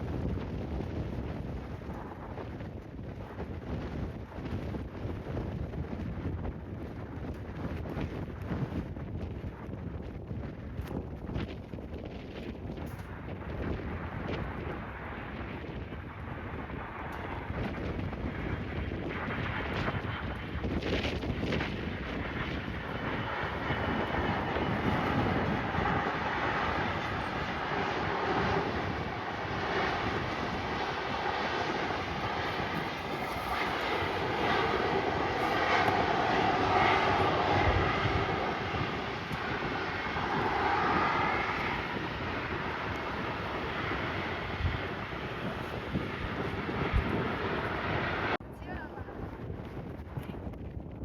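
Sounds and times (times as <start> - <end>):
wind buffeting microphone: 0.0 - 51.0
airliner engines passing: 12.3 - 50.3.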